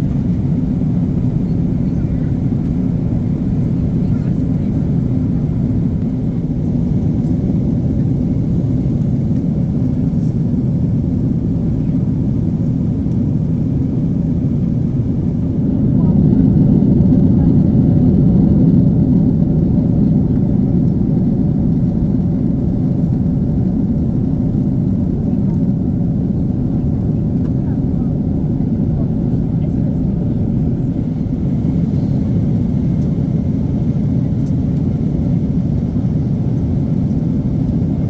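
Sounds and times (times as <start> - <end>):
airliner cabin engine rumble: 0.0 - 38.0.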